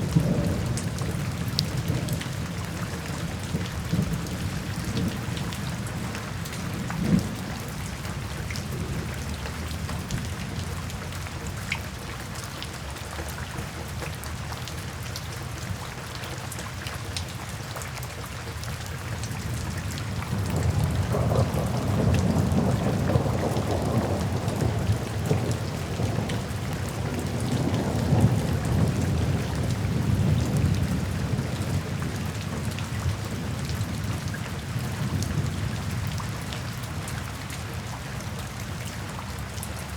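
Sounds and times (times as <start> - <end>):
low roll of thunder: 0.0 - 10.8, 19.4 - 36.1
rain falling: 0.0 - 39.9.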